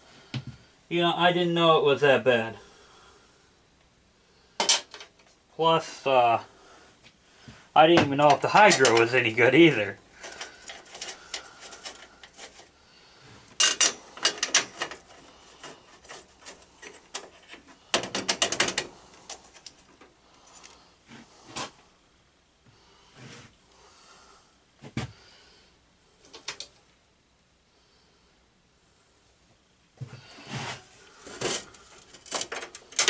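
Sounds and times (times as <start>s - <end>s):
tools knocking: 17.9s - 18.9s.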